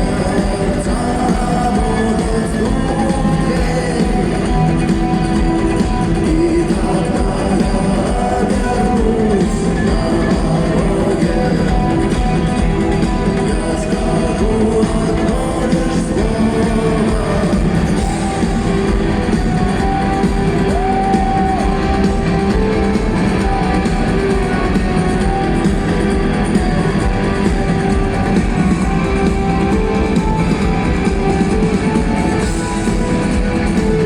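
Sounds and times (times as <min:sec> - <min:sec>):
guitar band playing rock: 0:00.0 - 0:34.0
person singing: 0:00.0 - 0:34.0.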